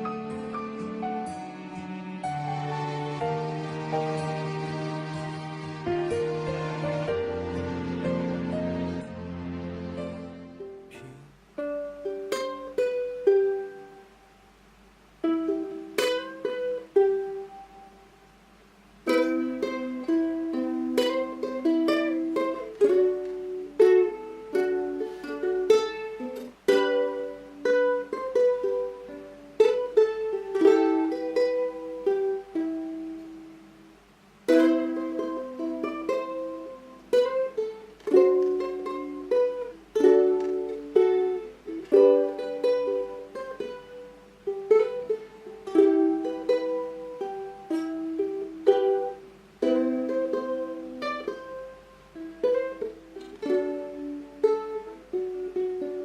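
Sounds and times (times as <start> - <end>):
solo ukulele melody: 0.0 - 56.0.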